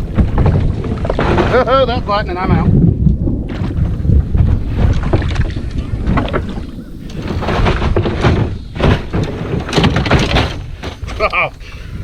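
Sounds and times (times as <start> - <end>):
kayak knocks and bumps: 0.0 - 11.6
wind rumbling on microphone: 0.0 - 12.0.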